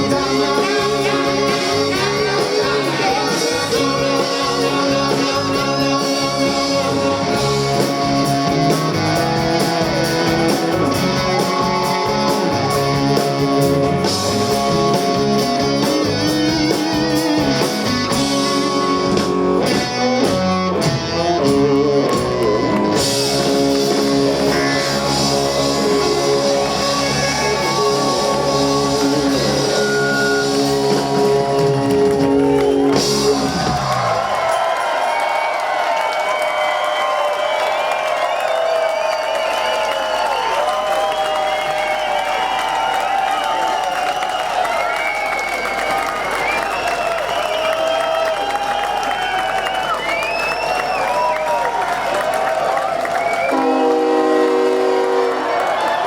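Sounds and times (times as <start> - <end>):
guitar lead: 0.0 - 34.2
bass guitar: 0.0 - 34.7
drums: 0.0 - 56.0.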